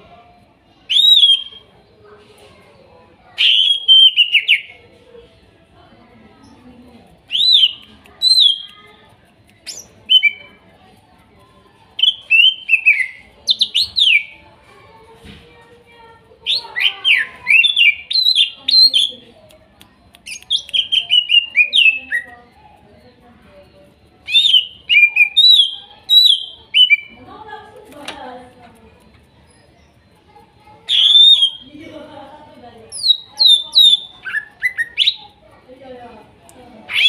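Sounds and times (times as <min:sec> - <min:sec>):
bird singing whistled notes: 0:00.8 - 0:01.7, 0:03.4 - 0:04.7, 0:07.3 - 0:08.7, 0:09.6 - 0:10.5, 0:12.0 - 0:14.4, 0:16.4 - 0:19.2, 0:20.2 - 0:22.4, 0:24.2 - 0:27.2, 0:30.9 - 0:31.7, 0:32.9 - 0:35.4.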